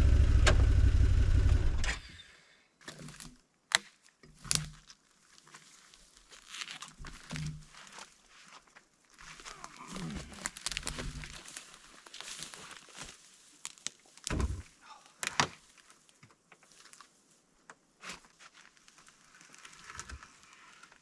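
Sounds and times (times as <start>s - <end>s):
knocks and snaps: 10.4s - 11.4s.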